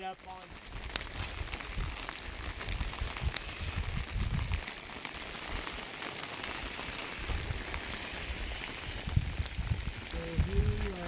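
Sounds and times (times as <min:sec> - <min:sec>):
light rain patter: 0:00.0 - 0:11.0
low rumbles: 0:06.5 - 0:11.0.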